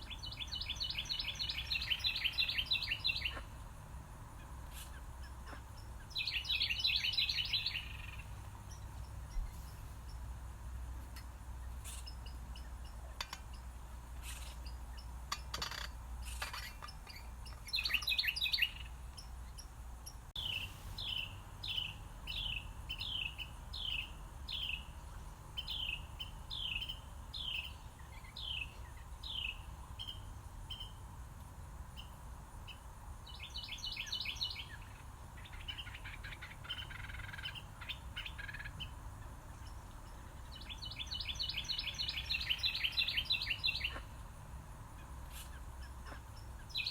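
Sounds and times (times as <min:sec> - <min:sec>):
songbirds singing: 0:00.0 - 0:46.9
bird chattering trills: 0:33.4 - 0:44.1.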